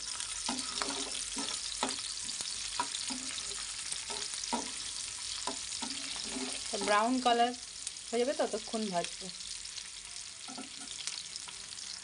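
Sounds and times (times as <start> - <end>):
spatula scraping a pan: 0.0 - 7.3
garlic sizzling in hot oil: 0.0 - 12.0.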